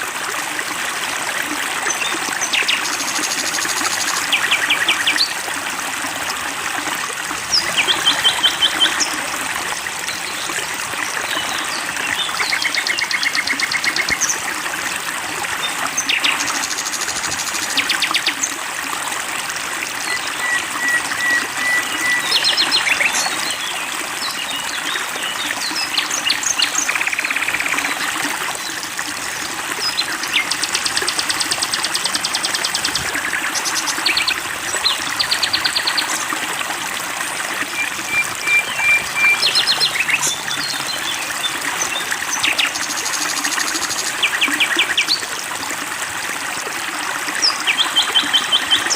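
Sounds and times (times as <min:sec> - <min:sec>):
flowing water: 0:00.0 - 0:48.9
songbirds trilling: 0:37.6 - 0:45.2.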